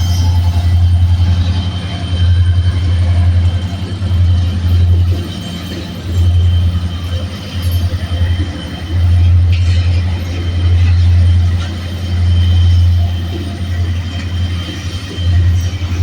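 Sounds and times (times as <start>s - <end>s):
freight train rumble: 0.0s - 16.0s.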